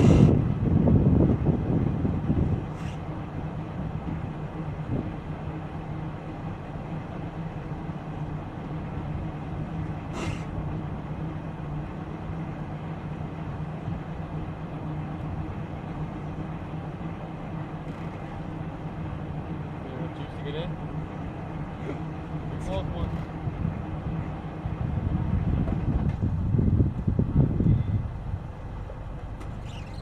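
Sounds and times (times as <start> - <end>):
boat engine humming: 0.0 - 30.0
high-pitched squeak: 29.6 - 30.0.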